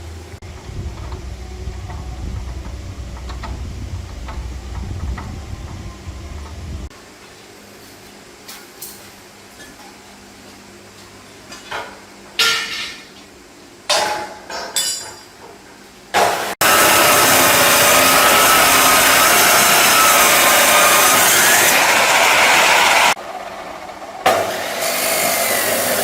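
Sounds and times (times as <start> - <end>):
power tool running: 16.2 - 23.2, 24.3 - 26.0.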